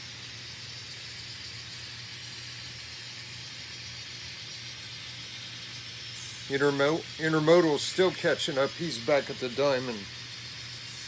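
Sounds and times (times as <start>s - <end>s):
even hiss: 6.2s - 10.2s
diesel engine drone from speaker: 6.3s - 10.1s.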